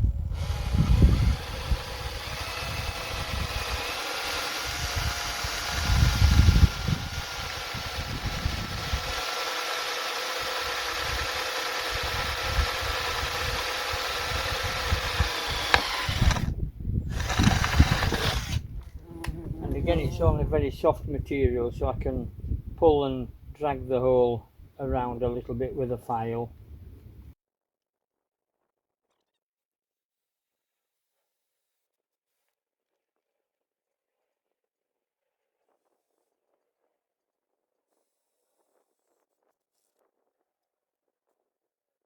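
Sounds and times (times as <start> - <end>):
electric drill whining: 0.0 - 20.1.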